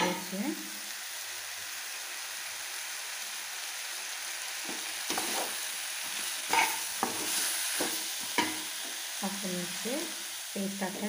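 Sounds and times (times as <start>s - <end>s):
food sizzling in a pan: 0.0s - 11.0s
steel spatula scraping a pan: 5.1s - 8.7s.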